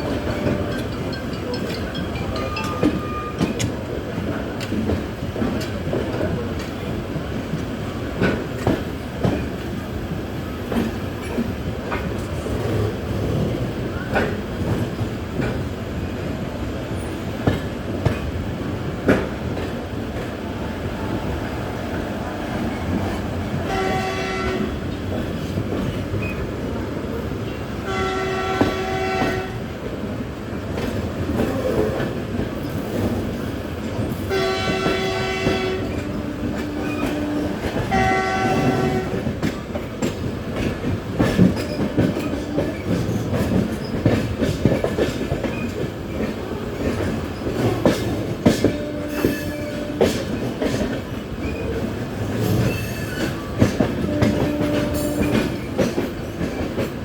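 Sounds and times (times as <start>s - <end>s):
train rumbling on rails: 0.0s - 57.0s
locomotive horn blasts: 23.7s - 24.8s, 27.9s - 29.6s, 34.3s - 39.2s.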